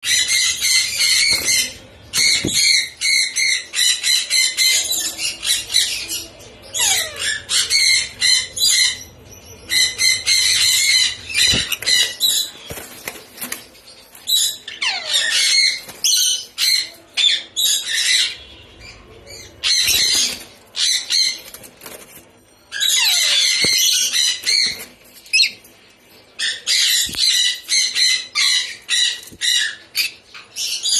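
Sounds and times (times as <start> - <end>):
lorikeets screeching: 9.7 - 13.1.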